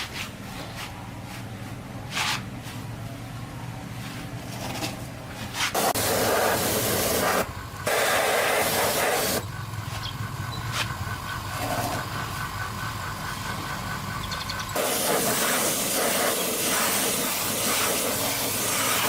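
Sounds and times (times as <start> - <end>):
engine humming: 0.0 - 19.0
loud hissing spray: 5.5 - 9.5, 14.8 - 19.0.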